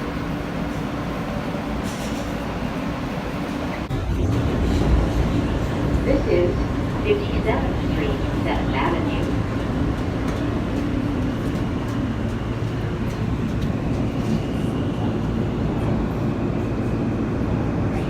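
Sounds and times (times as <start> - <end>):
subway train rumble and hum: 0.0 - 18.0.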